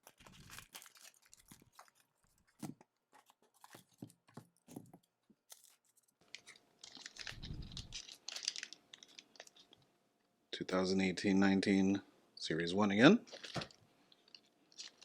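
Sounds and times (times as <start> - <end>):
plastic wrapper crinkling and tearing: 0.0 - 4.0, 5.4 - 9.8, 13.3 - 15.0.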